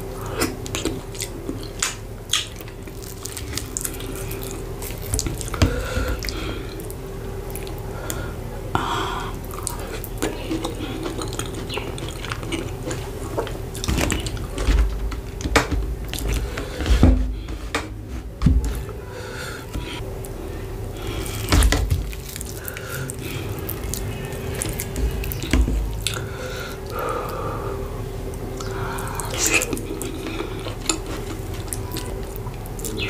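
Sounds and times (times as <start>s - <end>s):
wet chewing: 0.2s - 33.0s
wet mouth clicks and squishes: 0.4s - 5.6s, 9.5s - 14.6s
low thumps: 13.8s - 20.0s.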